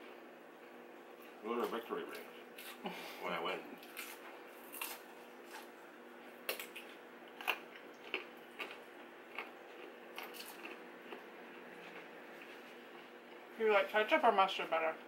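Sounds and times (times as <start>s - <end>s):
chewing crunchy food: 3.8s - 5.8s, 6.4s - 13.6s.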